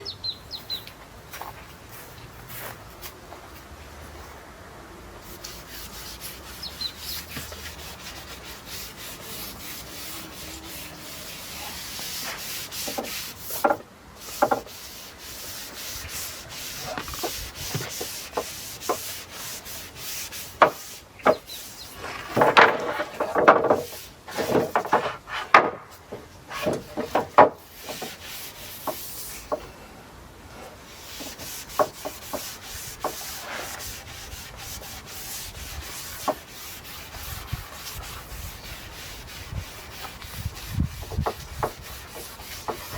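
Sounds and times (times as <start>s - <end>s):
brush rubbing on wood: 5.2s - 25.5s, 26.5s - 29.6s, 30.9s - 42.9s.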